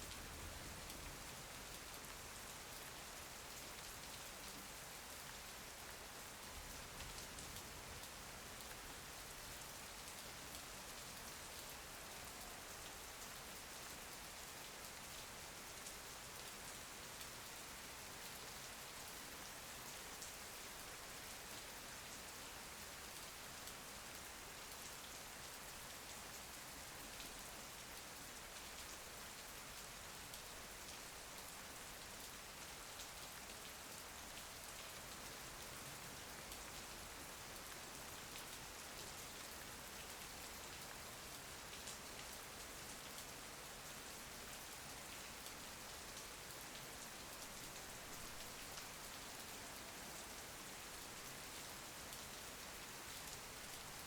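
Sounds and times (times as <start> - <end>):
rain pattering: 44.4 - 54.0.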